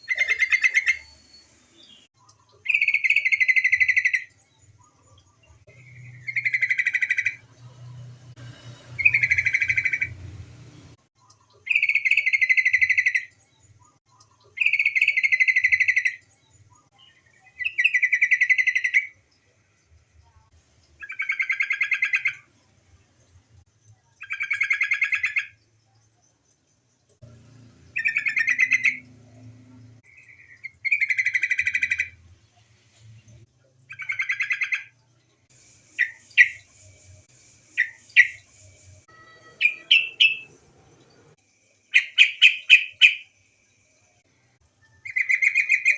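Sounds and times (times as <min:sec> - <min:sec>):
bird chattering calls: 0:39.6 - 0:40.5, 0:41.9 - 0:43.3.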